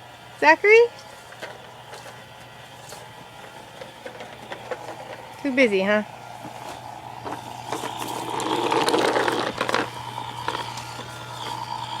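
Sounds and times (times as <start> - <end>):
toy lawnmower clicking and rattling: 2.9 - 5.2, 7.2 - 12.0.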